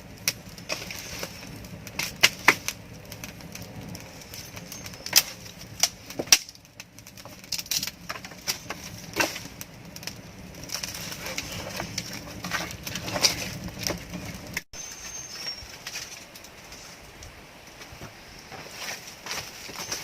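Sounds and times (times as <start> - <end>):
steady background hiss: 14.8 - 20.0.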